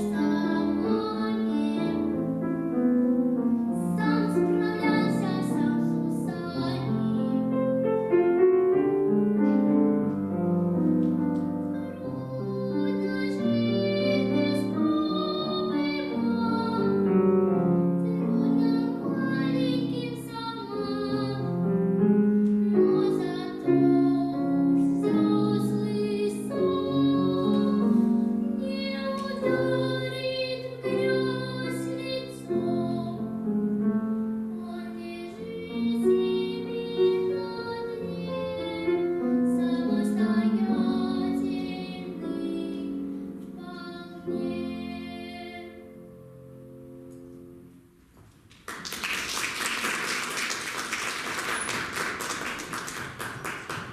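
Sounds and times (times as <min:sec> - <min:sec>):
girl singing: 0:00.0 - 0:02.5, 0:03.4 - 0:08.0, 0:11.4 - 0:21.9, 0:22.5 - 0:33.5, 0:34.2 - 0:46.2
piano accompaniment: 0:00.0 - 0:53.9.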